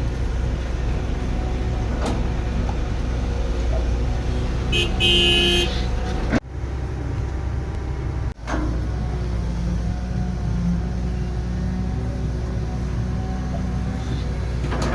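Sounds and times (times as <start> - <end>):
heavy diesel machinery rumbling: 0.0 - 14.9
vehicle horn: 4.7 - 5.9.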